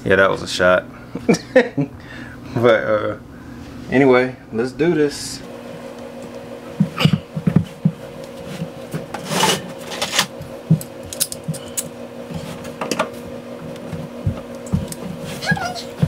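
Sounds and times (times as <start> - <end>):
steady low hum: 0.0 - 16.0
pipe scraping: 8.4 - 10.3.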